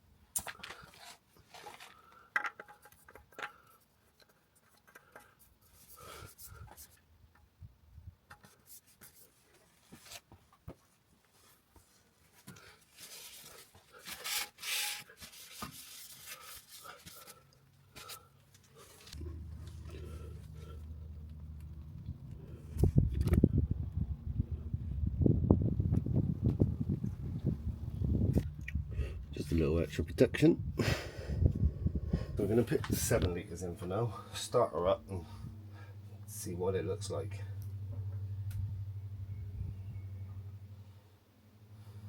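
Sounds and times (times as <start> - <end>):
tools clicking and knocking: 2.3 - 5.4
low steady hum: 18.4 - 42.0.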